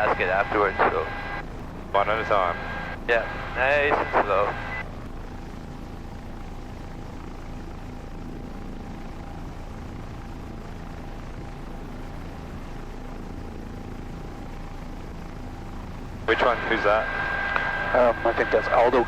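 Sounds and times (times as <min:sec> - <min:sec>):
faint steady tones: 0:00.0 - 0:19.0
helicopter drone inside cabin: 0:00.0 - 0:19.0.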